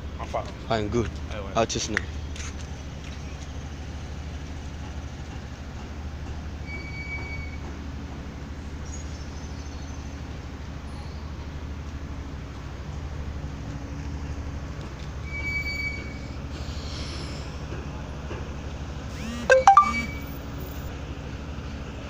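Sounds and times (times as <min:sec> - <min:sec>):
loud sliding-pitch sound: 0:19.2 - 0:20.2.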